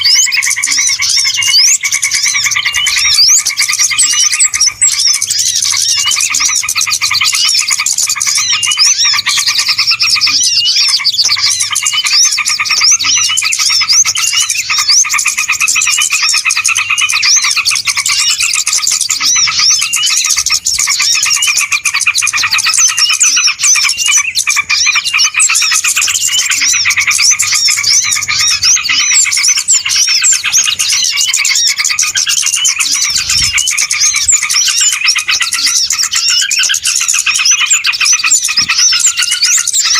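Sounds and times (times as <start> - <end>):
small birds chirping chorus: 0.0 - 39.9.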